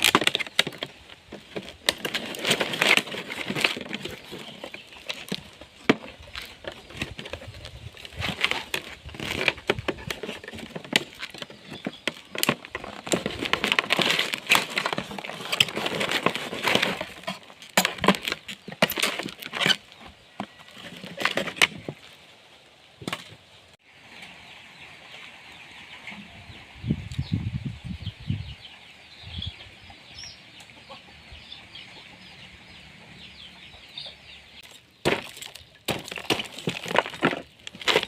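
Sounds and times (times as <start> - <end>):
rustling and crackling with clicks: 0.0 - 23.4, 34.6 - 38.0
chickens clucking: 29.6 - 34.6.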